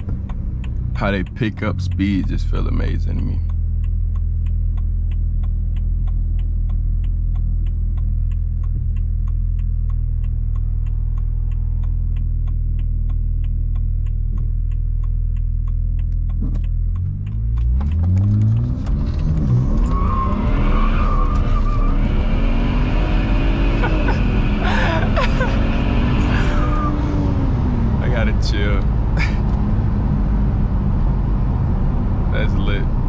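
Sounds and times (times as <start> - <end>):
rapid even ticking: 0.0 - 19.7
car engine revving: 0.0 - 33.0.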